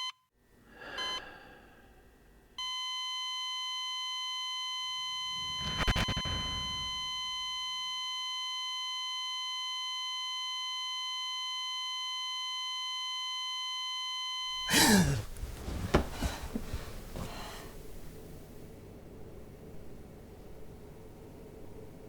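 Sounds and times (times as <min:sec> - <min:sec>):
steady electronic beep: 0:05.0 - 0:07.6
short falling sweep: 0:05.3 - 0:07.5
rustling: 0:14.6 - 0:18.5.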